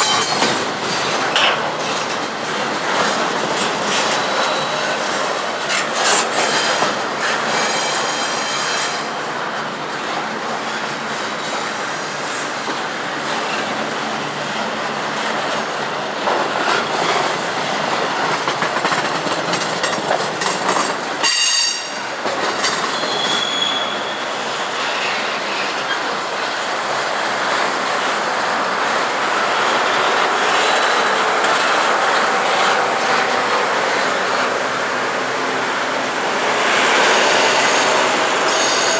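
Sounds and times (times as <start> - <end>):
train wheels rumbling on rail: 0.0 - 38.9
wheels clicking over rail joints: 12.6 - 23.2
high wheel squeals: 20.7 - 26.1, 36.9 - 38.9.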